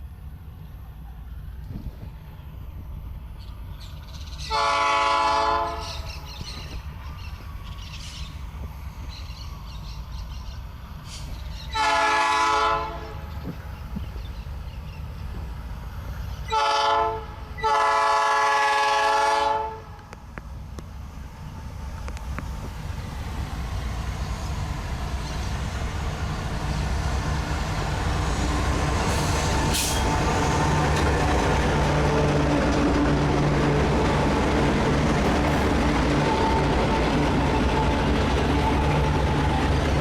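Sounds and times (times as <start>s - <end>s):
train engine rumble: 0.0s - 40.0s
locomotive air horn: 4.4s - 6.0s, 11.7s - 13.4s, 16.5s - 20.1s.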